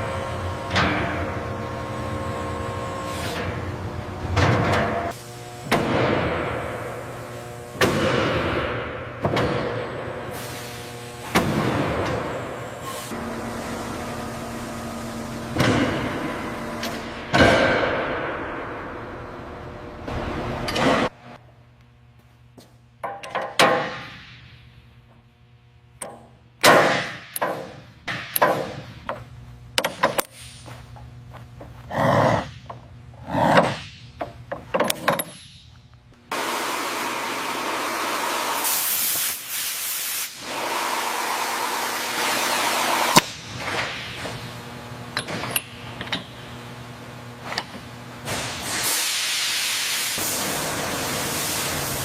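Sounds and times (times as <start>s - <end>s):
knocks clunks and clicks: 32.6s - 36.1s
steady air hiss: 38.0s - 43.1s, 48.2s - 52.0s.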